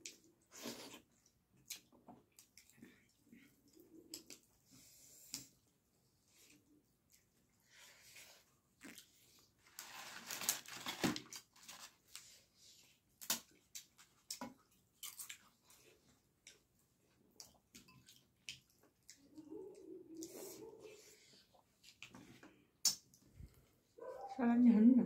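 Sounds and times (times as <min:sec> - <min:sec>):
people chewing food: 0:00.0 - 0:24.2
crisp crunches: 0:09.6 - 0:12.2.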